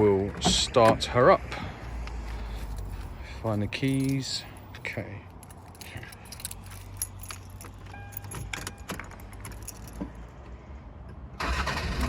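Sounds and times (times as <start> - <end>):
keys jangling: 2.5 - 10.2
ignition key turning: 5.4 - 10.1.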